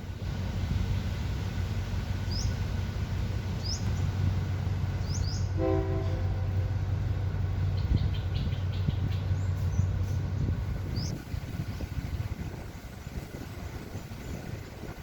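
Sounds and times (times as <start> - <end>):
diesel train engine rumbling: 0.0 - 15.0
train horn blast: 5.4 - 6.8.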